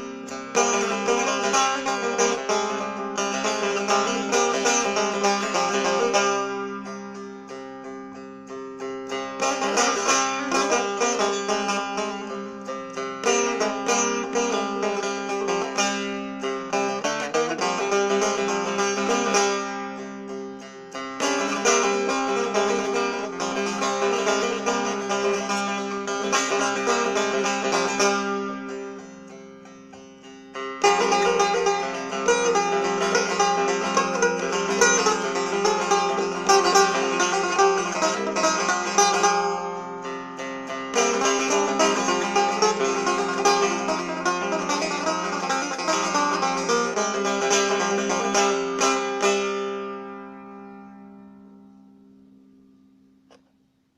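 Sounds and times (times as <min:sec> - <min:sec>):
plucked setar melody: 0:00.0 - 0:53.5.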